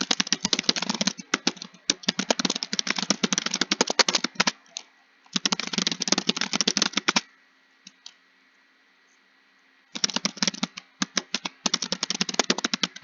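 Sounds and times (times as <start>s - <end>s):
fast typing on keyboard: 0.0s - 4.8s, 5.4s - 7.3s, 9.9s - 13.0s.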